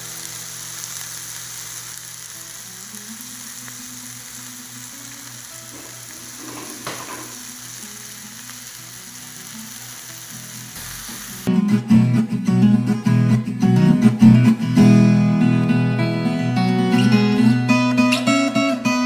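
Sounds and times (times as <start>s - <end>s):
vegetables sizzling in a pan: 0.0s - 11.5s.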